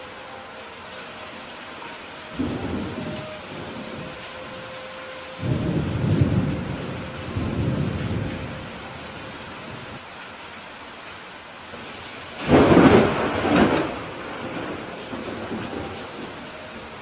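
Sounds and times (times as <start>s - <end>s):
rain hissing: 0.0s - 17.0s
thunder rumbling: 2.3s - 10.0s, 11.9s - 17.0s.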